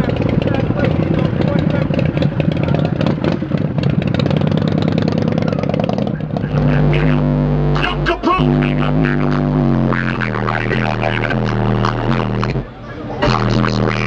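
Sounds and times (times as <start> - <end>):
loud vehicle engine pulsing: 0.0 - 14.0
music with deep bass: 4.9 - 14.0.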